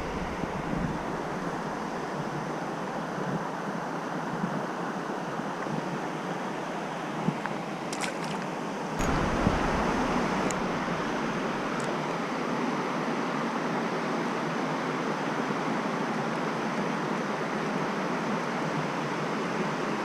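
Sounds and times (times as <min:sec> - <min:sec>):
low microphone rumble: 0:00.0 - 0:02.5, 0:09.0 - 0:12.3
stream water rushing: 0:00.0 - 0:02.8, 0:07.6 - 0:12.4.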